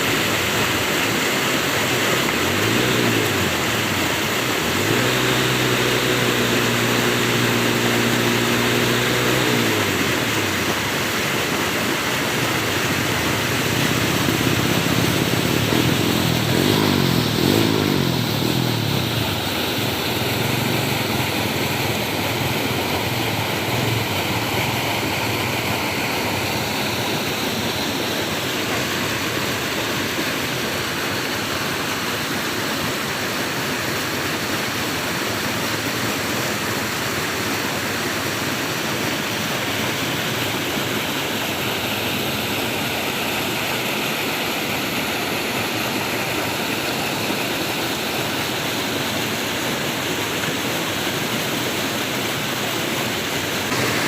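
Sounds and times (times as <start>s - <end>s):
engine rising and falling in pitch: 0.0s - 34.5s, 53.5s - 54.0s
engine drone: 0.0s - 54.0s
flowing water rushing: 0.0s - 54.0s.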